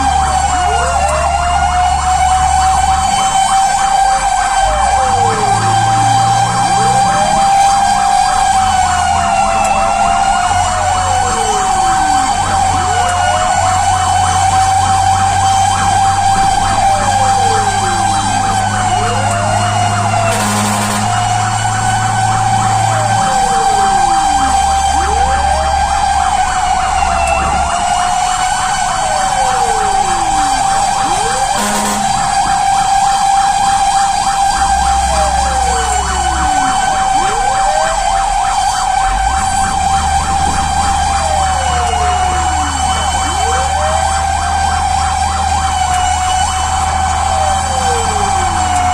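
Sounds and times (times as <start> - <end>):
fire truck siren: 0.0 - 48.9
bursts of noise: 19.7 - 26.3, 27.0 - 46.2.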